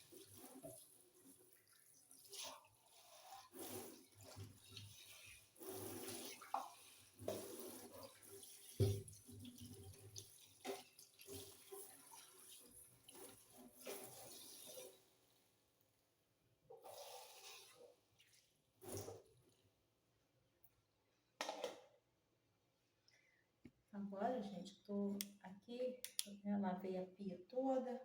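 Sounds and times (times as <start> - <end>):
tap water splashing in sink: 0.0 - 15.0.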